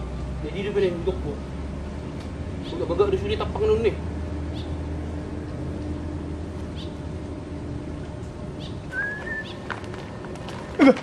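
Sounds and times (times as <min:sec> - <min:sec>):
steady low hum: 0:00.0 - 0:11.0
high bird chirps: 0:08.6 - 0:09.6
whistled bird note: 0:08.9 - 0:09.6.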